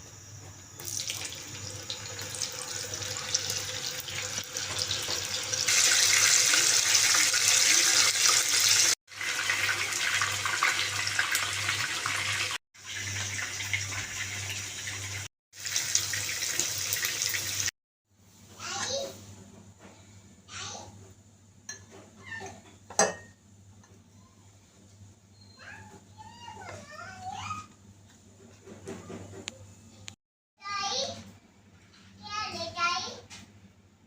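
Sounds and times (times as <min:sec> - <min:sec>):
tap water running into sink: 0:00.8 - 0:17.7.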